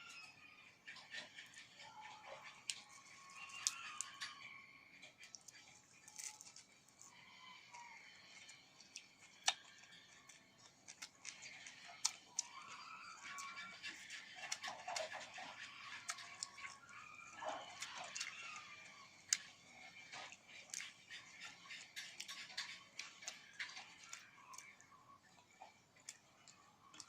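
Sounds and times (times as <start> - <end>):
person biting and chewing: 6.0 - 7.1, 9.0 - 9.9.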